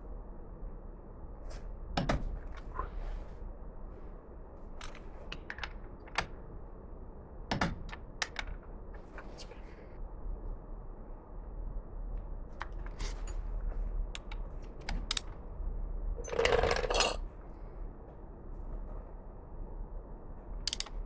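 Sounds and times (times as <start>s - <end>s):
metal on metal rattle: 16.2s - 17.2s.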